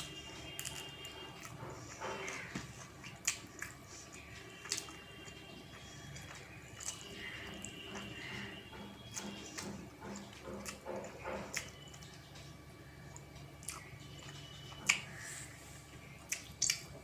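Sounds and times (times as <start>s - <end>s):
chewing and mouth smacks: 0.0s - 8.2s, 13.1s - 15.1s, 16.2s - 17.0s.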